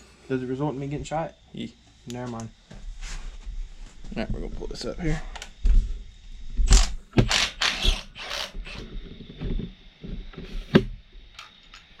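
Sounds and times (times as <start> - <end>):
ratchet wrench clicking: 6.7 - 8.8.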